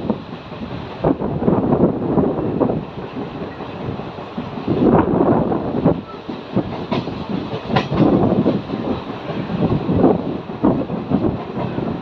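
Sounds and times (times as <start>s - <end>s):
train wheels clattering on rails: 5.8s - 12.0s.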